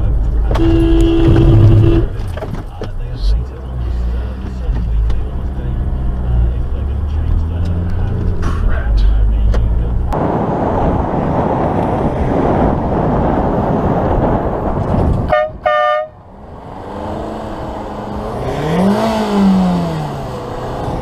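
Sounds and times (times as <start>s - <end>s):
road noise: 0.0s - 21.0s
car horn toots: 0.5s - 2.3s, 15.3s - 16.2s
vehicle engine revving: 3.2s - 15.4s, 16.2s - 21.0s.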